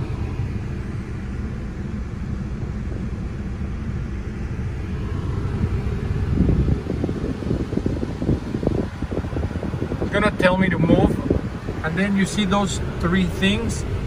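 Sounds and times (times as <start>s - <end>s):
car wash machinery rumbling: 0.0s - 14.0s.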